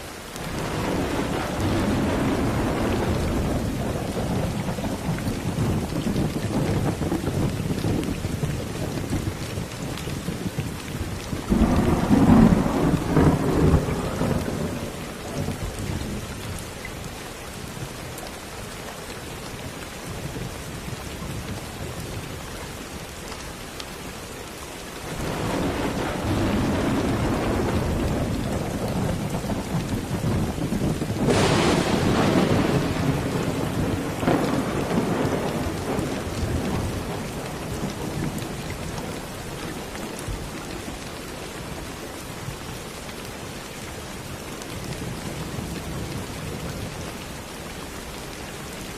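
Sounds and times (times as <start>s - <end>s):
steady rain: 0.0s - 48.9s
rolling thunder: 0.4s - 16.7s, 25.1s - 41.0s
thunder crack: 0.5s - 8.0s, 11.4s - 15.7s, 25.1s - 38.4s.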